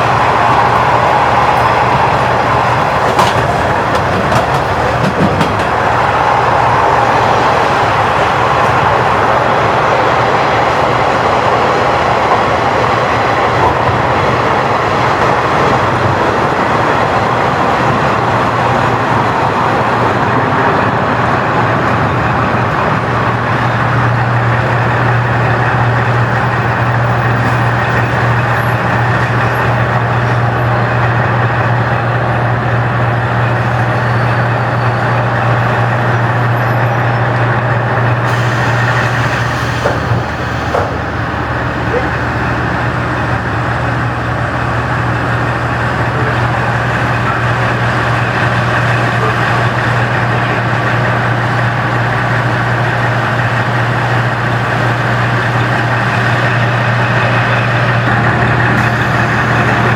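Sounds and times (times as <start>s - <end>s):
diesel engine drone: 0.0s - 59.9s
rushing running noise: 37.7s - 59.9s.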